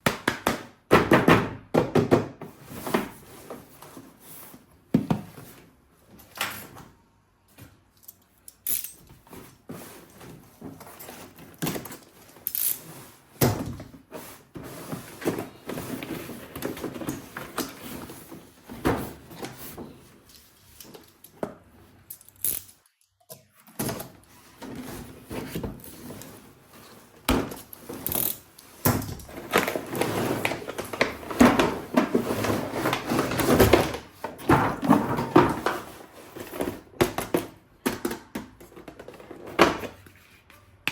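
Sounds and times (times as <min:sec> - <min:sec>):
objects clicking and scraping: 0:07.6 - 0:13.2, 0:14.2 - 0:40.9.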